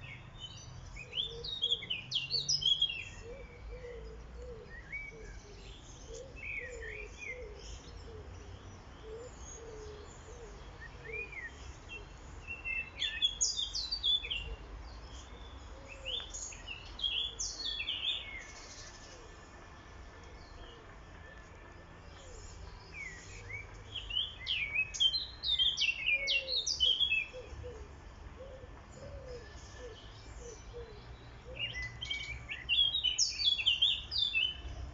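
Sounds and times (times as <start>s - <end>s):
songbirds chirping and trilling: 0.0s - 34.9s.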